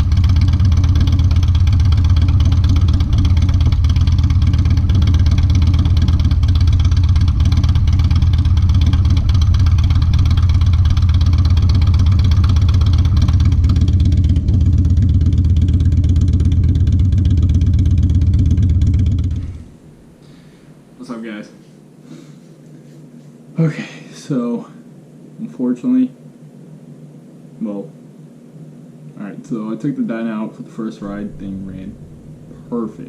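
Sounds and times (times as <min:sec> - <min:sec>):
motorcycle idling: 0:00.0 - 0:20.0.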